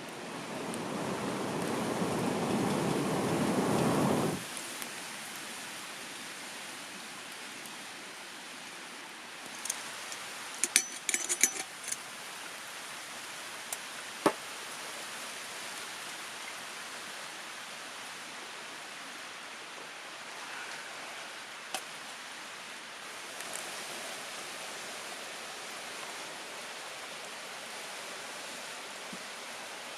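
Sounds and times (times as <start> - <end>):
hiss of running water: 0.0 - 7.6, 11.7 - 29.9.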